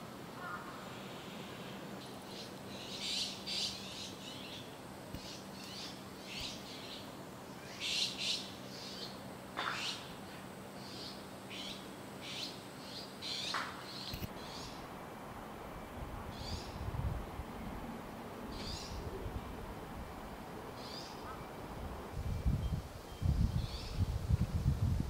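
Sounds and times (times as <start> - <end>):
birds chirping: 0.4 - 14.9.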